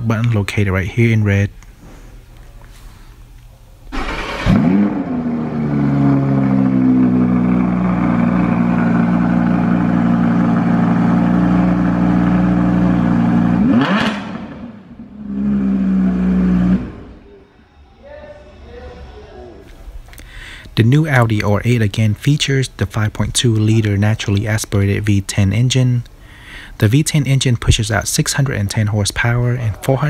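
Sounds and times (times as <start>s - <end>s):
car engine starting and idling: 3.9s - 17.3s
engine revving: 3.9s - 17.3s.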